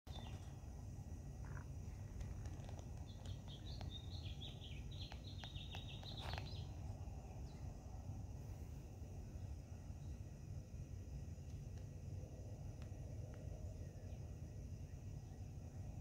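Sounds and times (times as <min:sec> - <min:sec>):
low outdoor rumble: 0:00.1 - 0:16.0
songbird chirping: 0:00.1 - 0:16.0.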